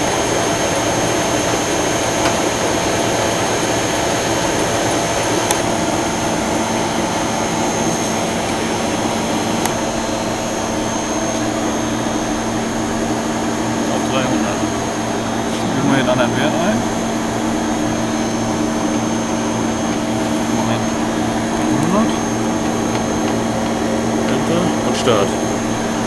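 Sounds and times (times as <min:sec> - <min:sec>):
lathe machine humming: 0:00.0 - 0:26.0
lower machine hum: 0:00.0 - 0:26.0.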